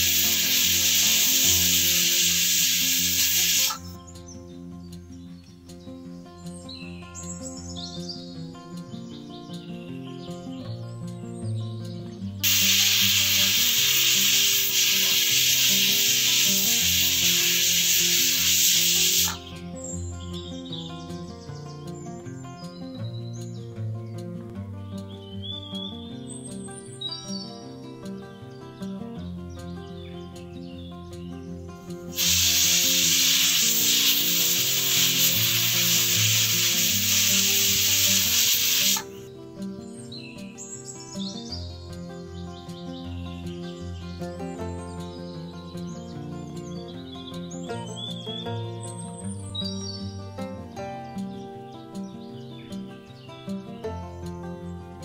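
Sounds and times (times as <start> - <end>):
pressure cooker whistle hissing: 0.0 - 4.0, 12.4 - 19.4, 32.1 - 39.2
background music: 0.0 - 55.0.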